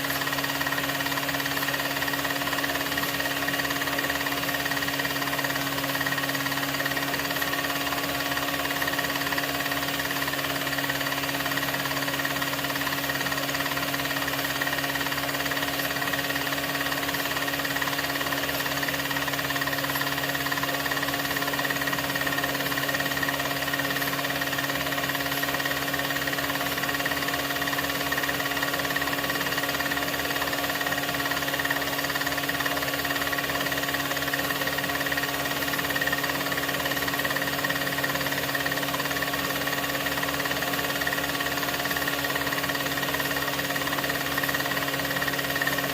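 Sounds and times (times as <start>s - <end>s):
film projector running: 0.0s - 45.9s.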